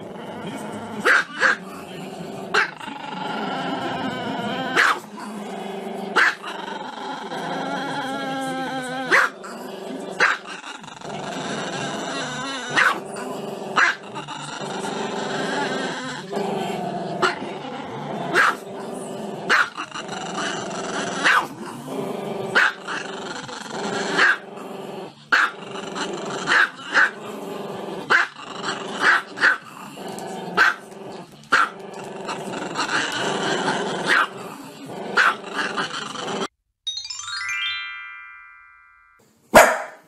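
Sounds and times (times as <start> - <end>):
dog growling: 0.0 - 36.6
dog barking sharply: 39.6 - 40.0.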